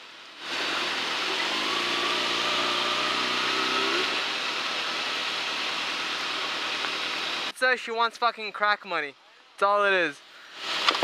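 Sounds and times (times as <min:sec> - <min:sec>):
motorcycle engine pulling: 0:00.5 - 0:04.4, 0:10.7 - 0:11.0.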